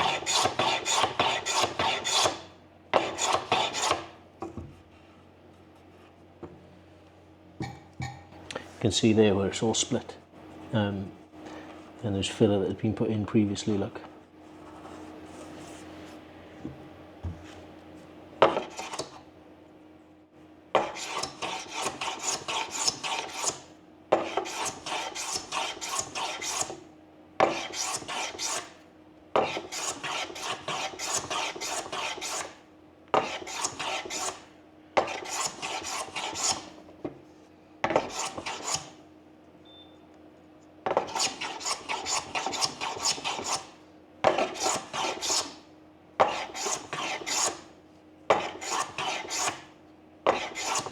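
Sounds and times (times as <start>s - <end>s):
hand tool rasping wood: 0.0s - 2.4s, 3.0s - 4.0s, 20.8s - 23.6s, 24.2s - 26.7s, 27.4s - 28.7s, 29.4s - 32.5s, 33.2s - 34.4s, 35.0s - 36.7s, 37.9s - 38.9s, 41.0s - 43.7s, 44.3s - 45.5s, 46.2s - 47.6s, 48.3s - 49.6s, 50.3s - 50.9s.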